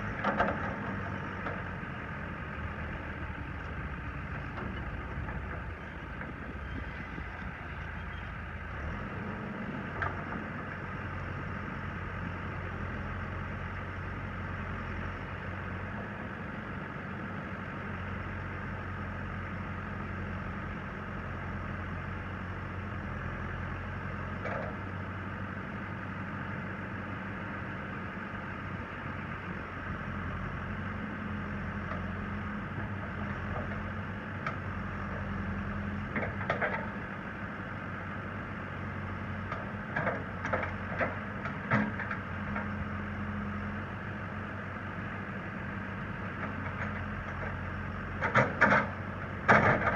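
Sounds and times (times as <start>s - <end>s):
diesel engine idling: 0.0s - 49.8s.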